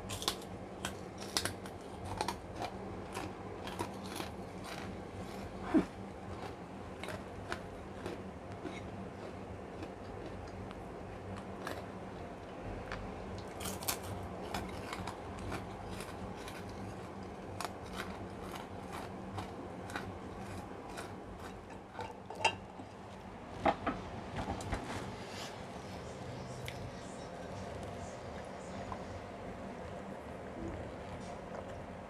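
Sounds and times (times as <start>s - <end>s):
crunching crackers: 0.0s - 23.3s.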